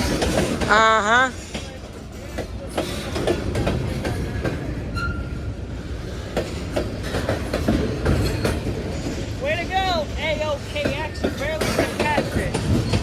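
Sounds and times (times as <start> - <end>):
freight train rumbling past: 0.0 - 13.0
wheels clicking over rail joints: 6.2 - 13.0.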